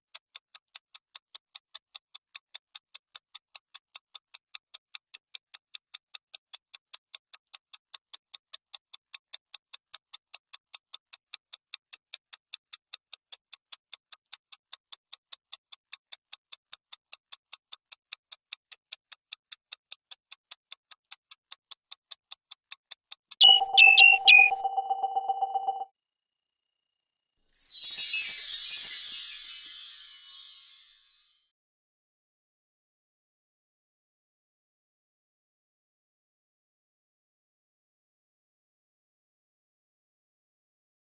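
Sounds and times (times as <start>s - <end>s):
clock ticking quickly: 0.2s - 27.4s.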